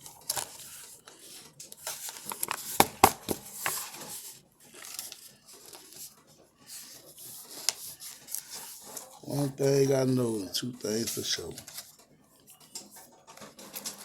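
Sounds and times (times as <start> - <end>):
rubbing and crinkling handling noise: 0.0 - 14.0.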